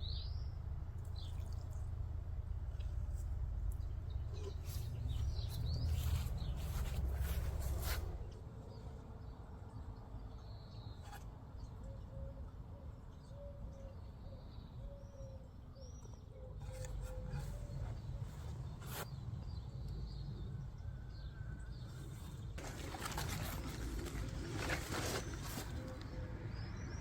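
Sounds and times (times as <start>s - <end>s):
birds chirping: 2.7s - 27.0s
rustling: 4.3s - 8.4s, 22.6s - 26.2s.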